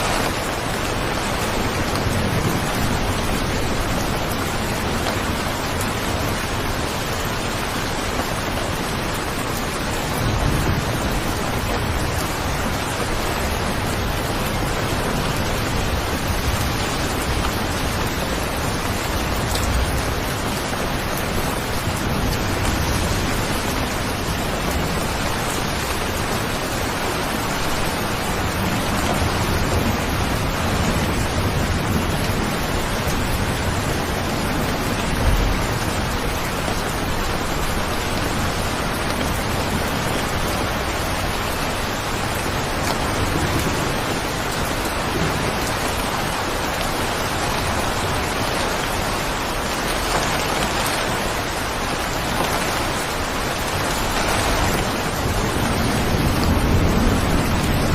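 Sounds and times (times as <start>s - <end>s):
heavy rain: 0.0s - 57.9s.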